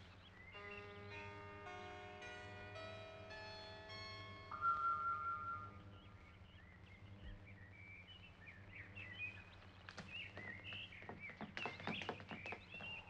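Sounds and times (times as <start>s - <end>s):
birds chirping: 0.0s - 13.0s
low hum: 0.1s - 9.7s.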